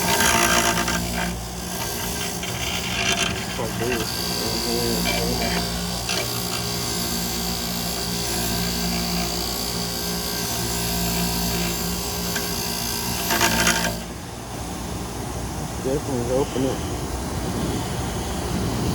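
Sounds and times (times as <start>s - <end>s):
wire brush scrubbing metal: 0.0s - 14.2s
motor hum: 0.0s - 18.9s.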